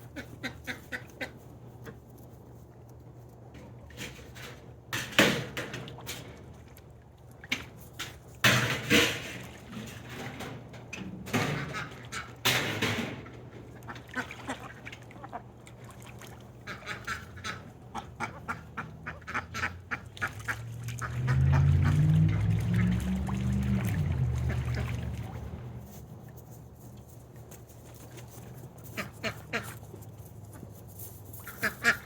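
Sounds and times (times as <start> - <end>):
ducks quacking: 0.0 - 2.0, 11.4 - 12.4, 13.8 - 15.6, 16.6 - 25.6, 28.9 - 30.0, 31.4 - 32.0.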